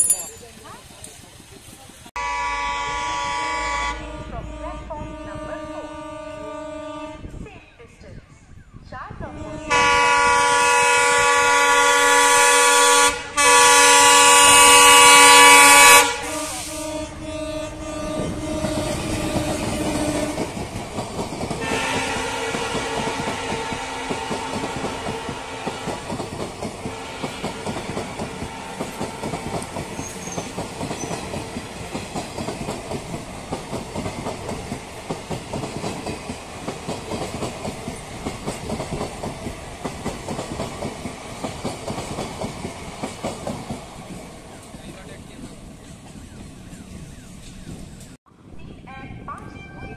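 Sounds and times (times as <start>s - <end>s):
fainter lower horn tone: 2.2s - 7.4s
train horn blast: 2.2s - 7.4s, 9.2s - 20.6s, 21.6s - 31.9s
train wheels clattering over rails: 18.0s - 46.8s.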